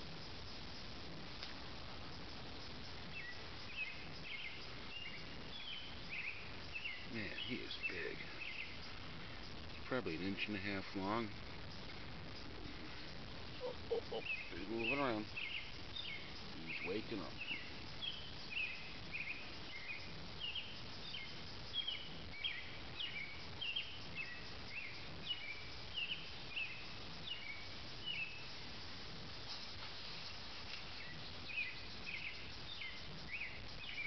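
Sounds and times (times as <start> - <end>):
small bird chirping: 0.0 - 34.0.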